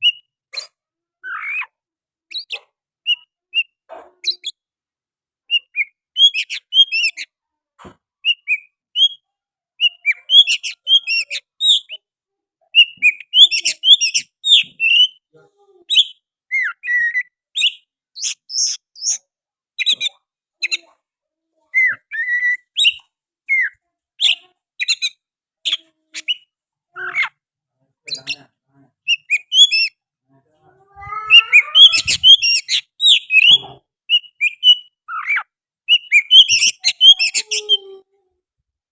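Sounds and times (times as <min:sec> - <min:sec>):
bird singing whistled notes: 0:31.4 - 0:37.2.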